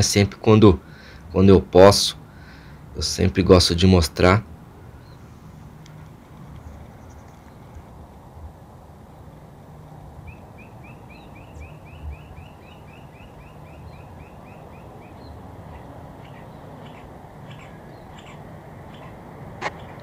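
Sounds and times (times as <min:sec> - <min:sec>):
low outdoor rumble: 0:00.0 - 0:20.0
bird calling rising notes: 0:10.1 - 0:20.0.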